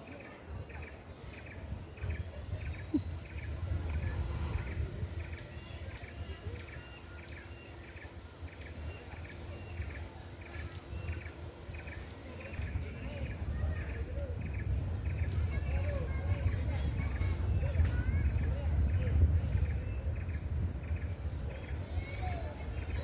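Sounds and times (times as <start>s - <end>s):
steady low rumble: 1.3s - 22.0s
rhythmic high chirping calls: 1.5s - 13.4s.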